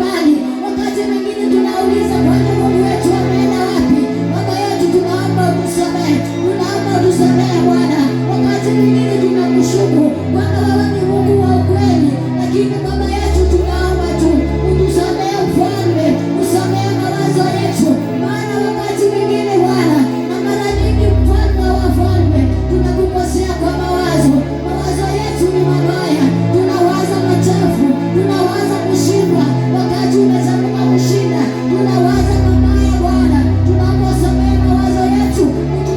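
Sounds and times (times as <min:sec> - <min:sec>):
worship singing: 0:00.0 - 0:35.9
bass line: 0:01.9 - 0:19.0, 0:20.6 - 0:35.9
held chords: 0:20.7 - 0:26.6.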